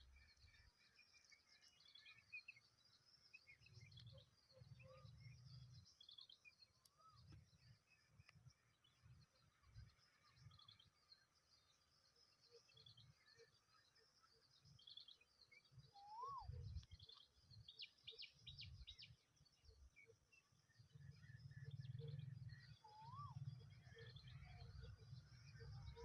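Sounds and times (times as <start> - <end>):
rising and falling whistles: 16.0 - 16.5.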